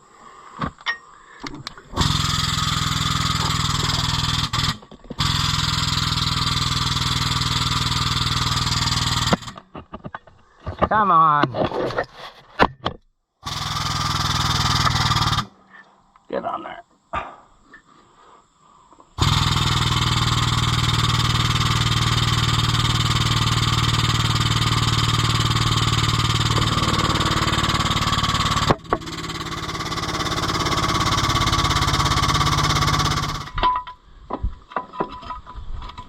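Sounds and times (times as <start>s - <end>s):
engine running: 1.9s - 9.6s, 13.5s - 15.5s, 19.2s - 33.6s.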